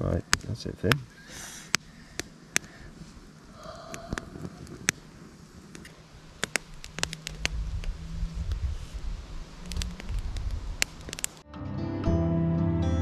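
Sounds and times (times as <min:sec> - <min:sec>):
dry sticks snapping: 0:01.7 - 0:02.8, 0:03.6 - 0:05.0, 0:05.7 - 0:08.6, 0:09.6 - 0:11.4
low rumble: 0:02.2 - 0:11.4.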